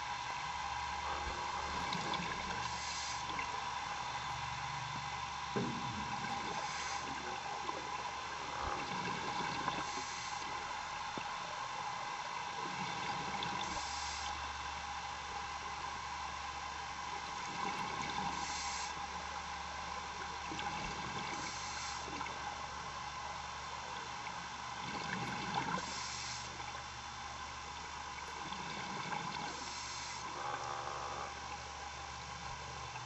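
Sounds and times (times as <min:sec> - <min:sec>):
steady hum: 0:00.0 - 0:33.0
diver breathing underwater: 0:02.4 - 0:03.4, 0:06.3 - 0:07.4, 0:08.4 - 0:10.7, 0:13.6 - 0:14.4, 0:18.2 - 0:19.0, 0:21.3 - 0:22.2, 0:25.7 - 0:26.6, 0:29.5 - 0:31.3.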